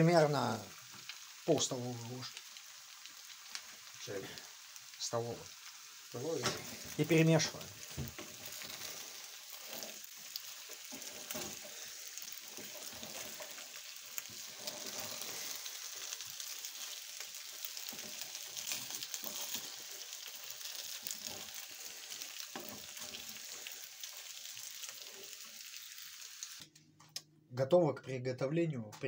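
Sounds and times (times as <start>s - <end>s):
dumplings sizzling in frying pan: 0.0s - 26.6s
wooden spatula scraping pan: 7.8s - 16.2s.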